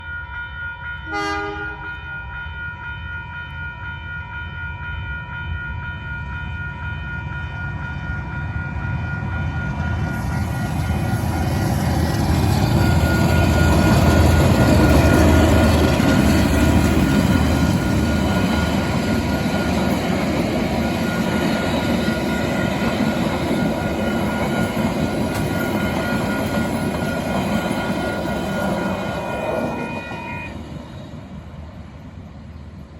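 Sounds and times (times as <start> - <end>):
high ringing tones: 0.0 - 31.0
train wheel noise: 5.2 - 32.9
locomotive rumble: 8.9 - 32.9.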